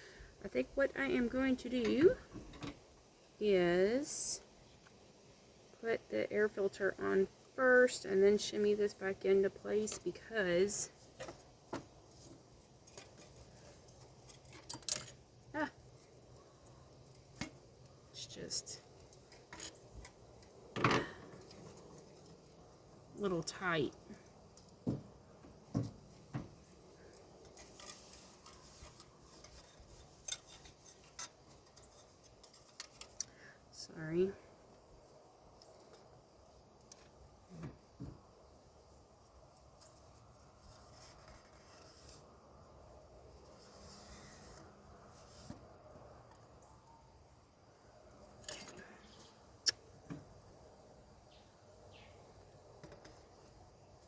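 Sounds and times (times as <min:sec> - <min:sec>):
plastic parts rubbing and scraping: 0:26.5 - 0:33.2
faint birds chirping: 0:46.2 - 0:54.0.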